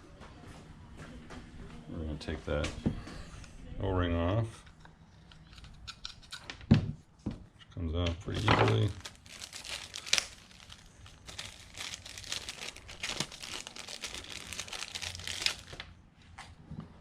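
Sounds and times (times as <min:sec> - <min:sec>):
plastic bag crinkling: 0:08.3 - 0:15.9.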